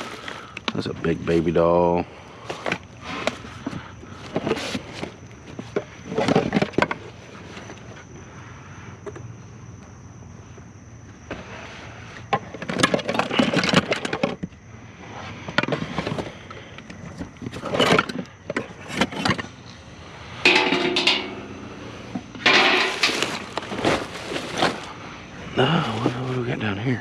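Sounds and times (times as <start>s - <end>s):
junk clattering and scraping: 12.3s - 14.5s, 17.0s - 26.3s.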